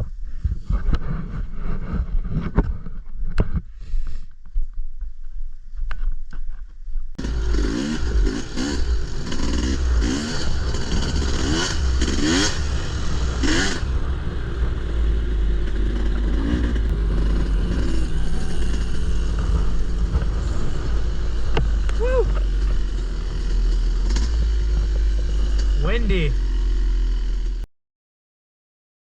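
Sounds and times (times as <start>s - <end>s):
dirt bike engine revving: 7.2s - 27.6s.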